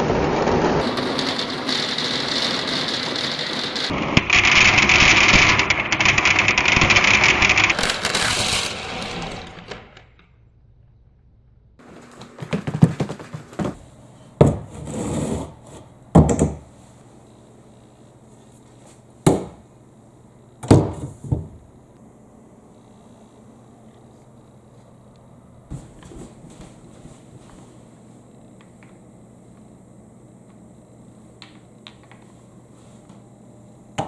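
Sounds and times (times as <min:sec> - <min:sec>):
marbles rattling through marble run: 0:00.2 - 0:09.0
marbles clacking on wood: 0:00.8 - 0:08.6.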